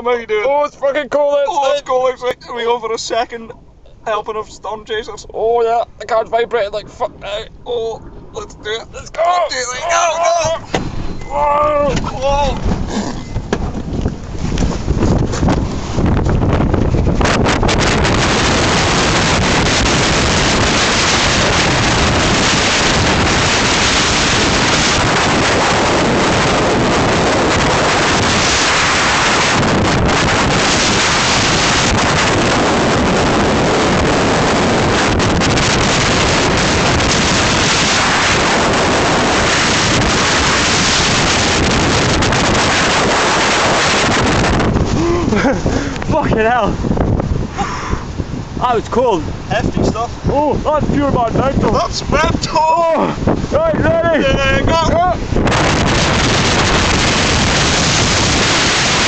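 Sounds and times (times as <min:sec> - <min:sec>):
wind blasting microphone: 0:00.0 - 0:59.0.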